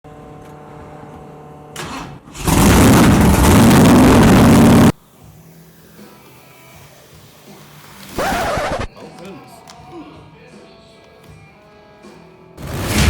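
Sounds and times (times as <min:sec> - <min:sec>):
engine starting and running loud: 0:01.8 - 0:05.0, 0:12.6 - 0:13.0.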